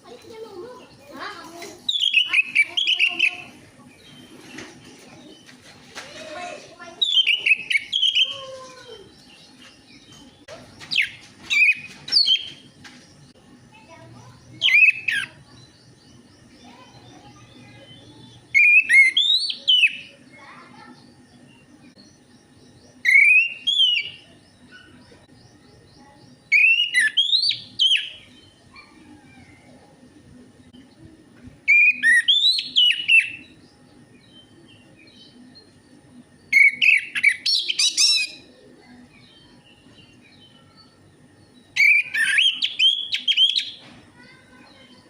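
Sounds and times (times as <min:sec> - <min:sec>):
faint low hum: 0:00.0 - 0:45.0
thrush singing whistled notes: 0:18.5 - 0:20.1, 0:23.0 - 0:24.2, 0:26.5 - 0:28.3, 0:31.7 - 0:33.5, 0:36.5 - 0:38.4, 0:41.8 - 0:43.7.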